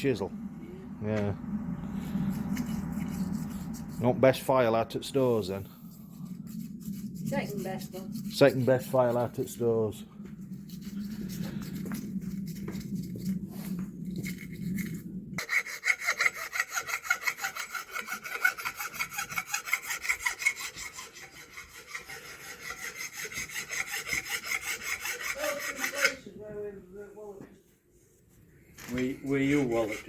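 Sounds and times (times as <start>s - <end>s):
file rasping on metal: 2.1s - 4.2s, 6.2s - 9.5s, 15.4s - 26.3s, 28.8s - 30.0s.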